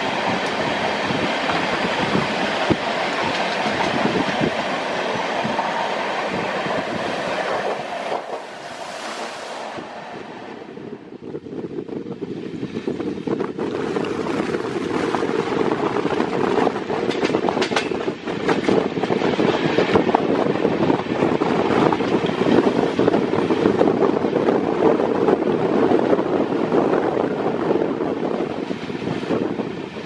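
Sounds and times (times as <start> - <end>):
train wheels rushing on rails: 0.0 - 30.0
wind buffeting microphone: 0.0 - 30.0
sharp rail clacks: 16.9 - 19.2.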